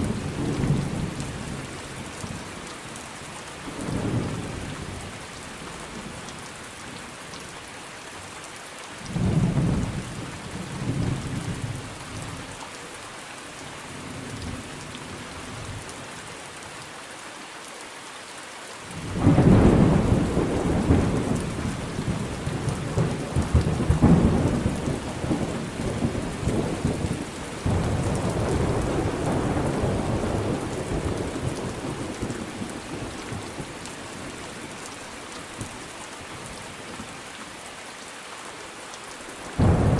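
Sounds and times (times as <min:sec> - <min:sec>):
steady rain: 0:00.0 - 0:39.9
thunder rumbling: 0:19.0 - 0:33.7, 0:39.6 - 0:39.9.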